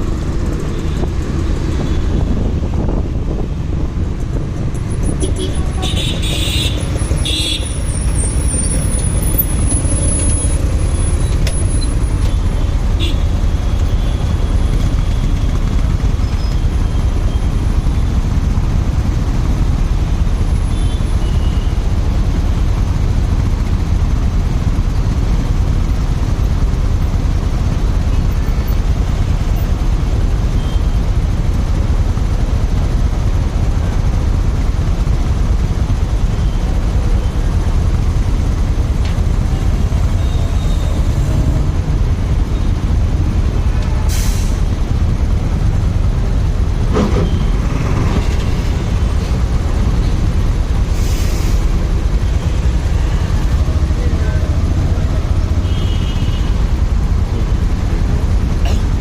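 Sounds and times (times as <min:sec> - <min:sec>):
road noise rumble: 0:00.0 - 0:59.0
vehicle sound: 0:00.0 - 0:59.0
wind rush on microphone: 0:00.1 - 0:06.5.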